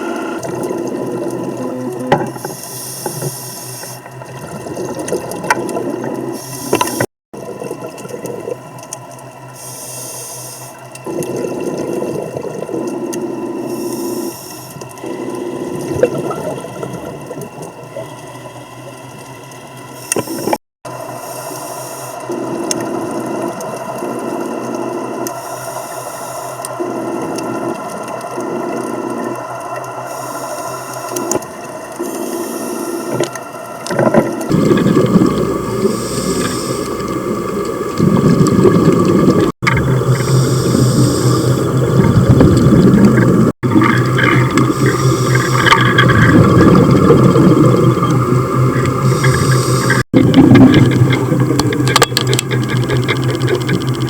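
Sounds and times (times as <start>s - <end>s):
hissing regulator inhalations: 0.0s - 4.2s, 6.3s - 7.1s, 9.5s - 11.3s, 12.1s - 15.9s, 20.0s - 50.1s
bubbling exhalation: 11.0s - 13.9s, 15.0s - 17.5s, 33.9s - 53.8s.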